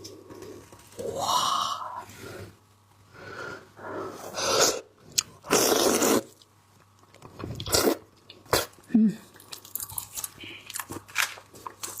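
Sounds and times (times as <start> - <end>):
mouth sucking sounds while eating: 4.2 - 6.4, 7.6 - 8.7.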